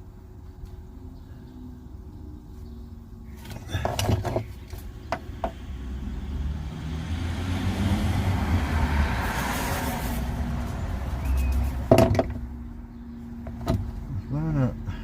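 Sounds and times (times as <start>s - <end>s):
sharp knocks: 11.8s - 12.4s.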